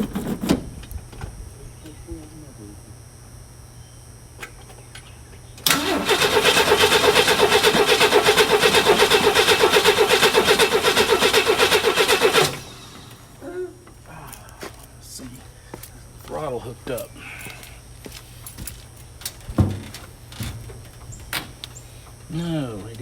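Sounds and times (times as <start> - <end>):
engine cranking on starter: 5.6 - 13.4.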